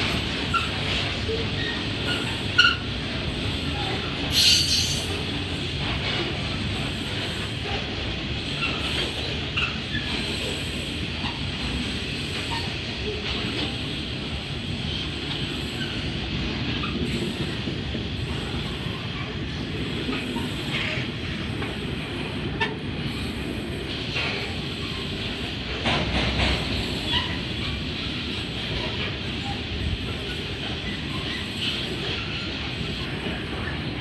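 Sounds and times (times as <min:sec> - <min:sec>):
steel wheels rumbling on rail: 0:00.0 - 0:34.0
high wheel squeals: 0:04.3 - 0:05.2.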